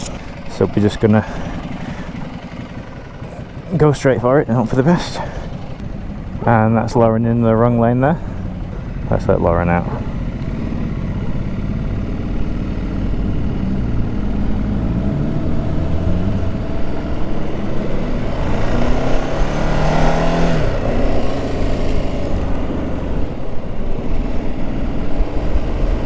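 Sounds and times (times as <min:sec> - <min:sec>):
motorcycle engine accelerating: 0:00.0 - 0:26.0
rushing wind noise: 0:16.3 - 0:26.0.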